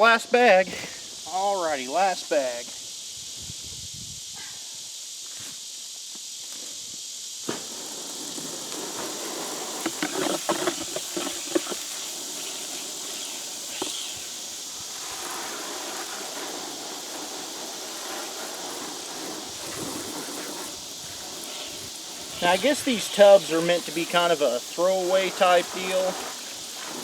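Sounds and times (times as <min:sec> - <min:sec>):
insects hissing: 0:00.0 - 0:27.0
knocks and scrapes in plastic tub: 0:09.8 - 0:11.9.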